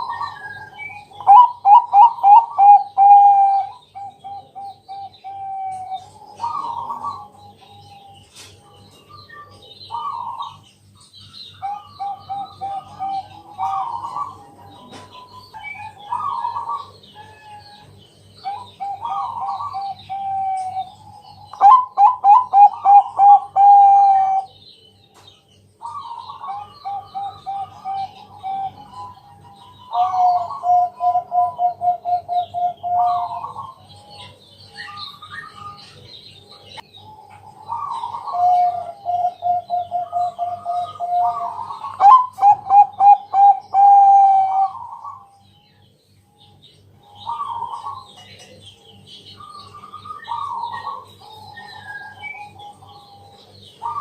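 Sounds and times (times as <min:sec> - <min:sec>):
dove cooing: 0:00.0 - 0:10.7, 0:11.6 - 0:24.6, 0:25.8 - 0:45.3, 0:47.1 - 0:48.2, 0:49.4 - 0:54.0
small birds chirping: 0:00.0 - 0:54.0.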